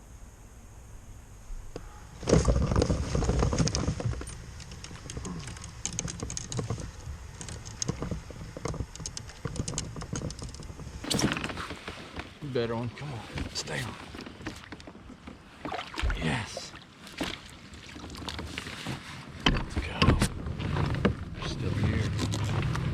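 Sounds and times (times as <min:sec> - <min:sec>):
fish splashing in water: 0:15.6 - 0:18.6.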